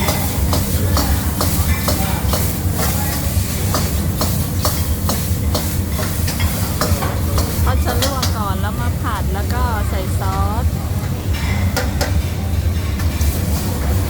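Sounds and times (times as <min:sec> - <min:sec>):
steady low hum: 0:07.6 - 0:11.6.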